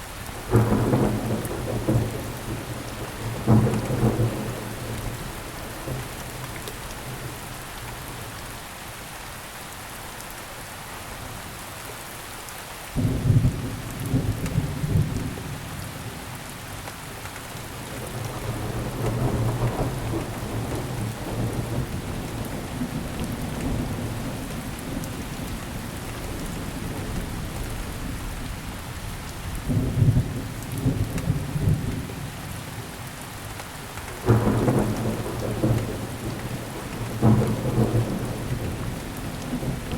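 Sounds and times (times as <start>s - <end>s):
rolling thunder: 0.5s - 7.4s, 17.8s - 28.5s, 34.1s - 39.9s
loud thunderclap: 34.1s - 39.9s.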